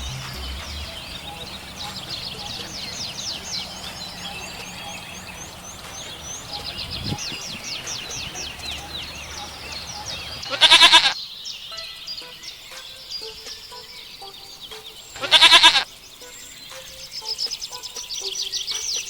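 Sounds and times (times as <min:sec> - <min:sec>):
small birds chirping: 0:00.0 - 0:19.0
goat bleating: 0:10.5 - 0:11.2, 0:15.2 - 0:15.9.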